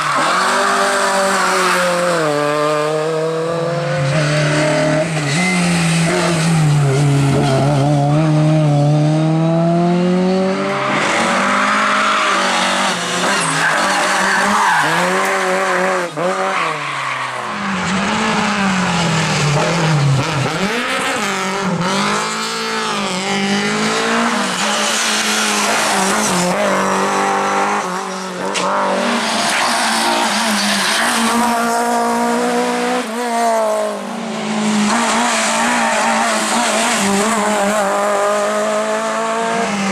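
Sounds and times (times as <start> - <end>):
tyre squeal and skidding: 0.0 - 2.3, 10.8 - 19.0, 27.9 - 32.0, 34.6 - 37.9
rally car engines revving: 0.0 - 39.9.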